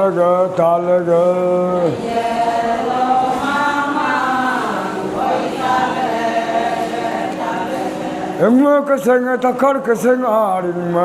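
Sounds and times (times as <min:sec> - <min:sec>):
group chanting: 0:01.2 - 0:08.6.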